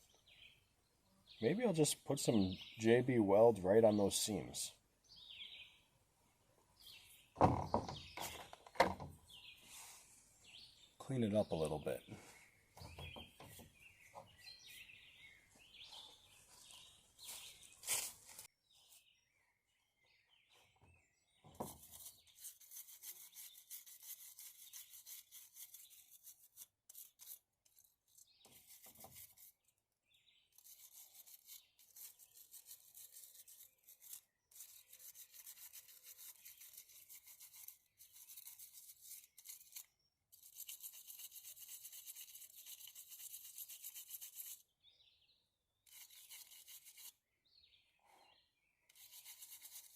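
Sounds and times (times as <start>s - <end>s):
rapid scrubbing strokes: 21.7s - 27.9s, 30.6s - 44.6s, 45.9s - 47.2s, 48.9s - 49.9s.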